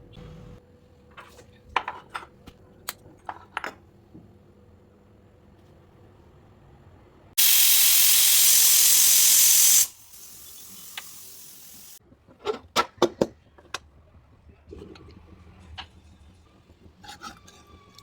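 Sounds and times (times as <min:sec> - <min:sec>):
steam hissing: 0:07.4 - 0:12.0.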